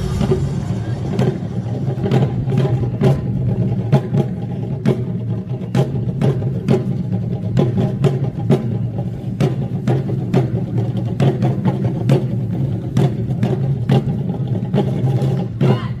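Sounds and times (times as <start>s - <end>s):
low hum: 0.0s - 3.9s
drum strikes: 0.0s - 8.7s.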